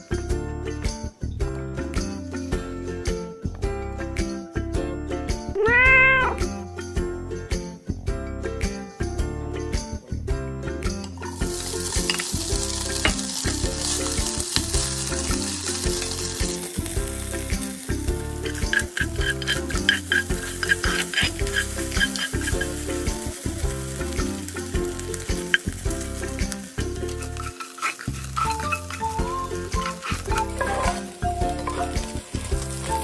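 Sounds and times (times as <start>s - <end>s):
meat sizzling in oil: 11.2s - 33.0s
spatula scraping pot: 11.2s - 33.0s.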